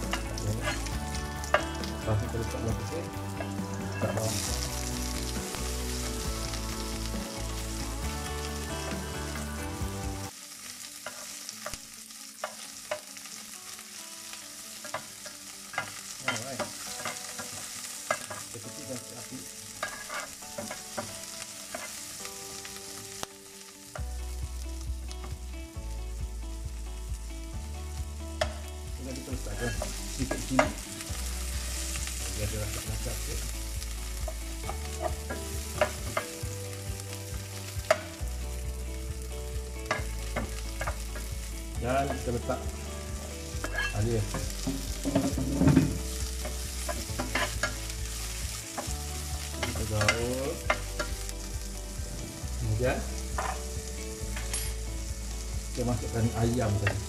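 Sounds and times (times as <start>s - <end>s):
onions sizzling in oil: 0.0s - 57.0s
metal spatula scraping a pan: 19.8s - 21.1s, 43.6s - 46.0s, 46.8s - 47.8s.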